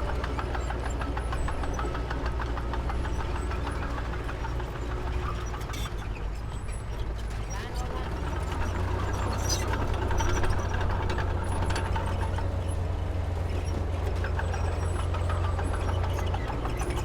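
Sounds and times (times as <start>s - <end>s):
heavy diesel engine droning: 0.0s - 17.0s
light clicks and clatter: 8.4s - 17.0s.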